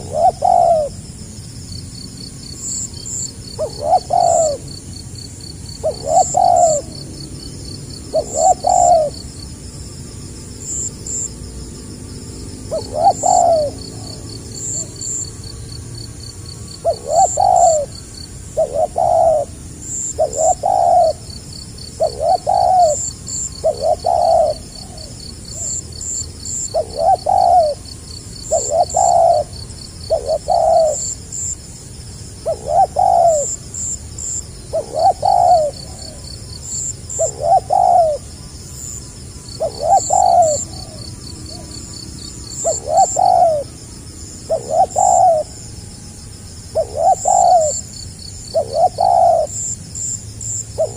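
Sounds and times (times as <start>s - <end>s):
dove cooing: 0.0s - 1.0s, 2.4s - 5.0s, 5.7s - 9.5s, 12.5s - 15.5s, 16.7s - 31.5s, 32.4s - 43.8s, 44.4s - 45.7s, 46.7s - 50.9s
faint high chirping: 12.5s - 15.8s, 16.4s - 31.6s, 32.4s - 50.9s.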